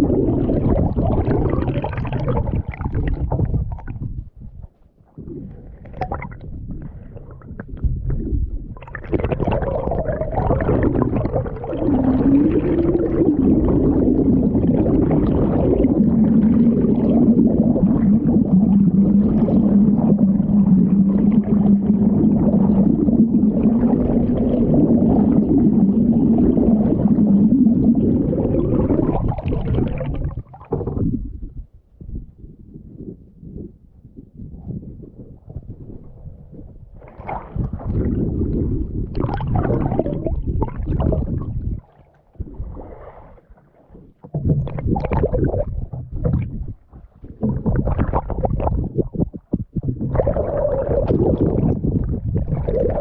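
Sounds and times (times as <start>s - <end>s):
muffled water gurgling and rushing: 0.0s - 53.0s.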